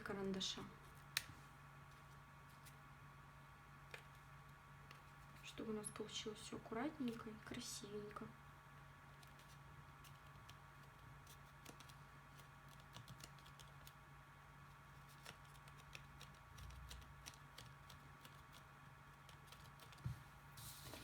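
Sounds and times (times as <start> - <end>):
paper pieces clicking: 15.0 - 20.0.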